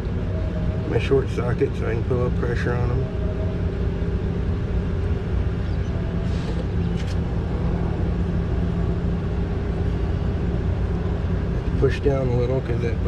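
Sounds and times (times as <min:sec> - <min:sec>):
machine humming: 0:02.6 - 0:11.8.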